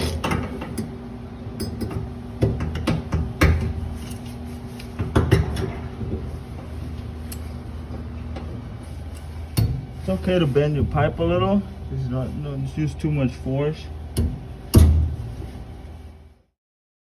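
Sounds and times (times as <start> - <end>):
steady low hum: 0.0 - 16.6
copper pipe knocks and clanks: 1.6 - 3.8, 14.2 - 15.3.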